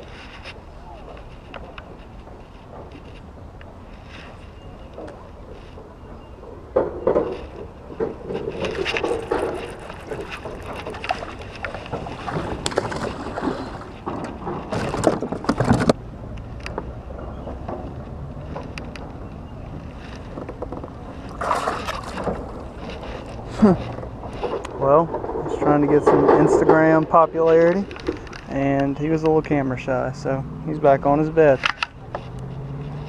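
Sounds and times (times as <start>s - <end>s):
water sloshing around kayak: 7.4s - 15.7s, 19.9s - 24.6s.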